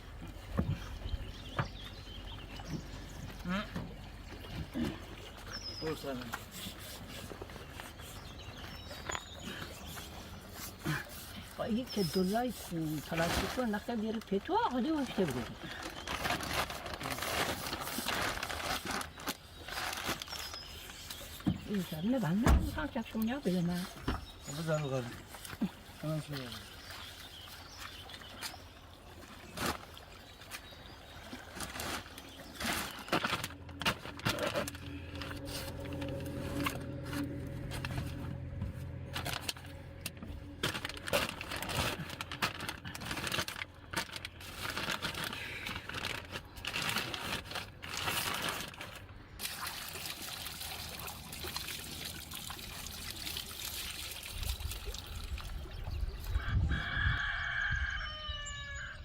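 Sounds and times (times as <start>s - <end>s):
water pouring: 49.4s - 56.0s
water splashing: 49.4s - 56.0s.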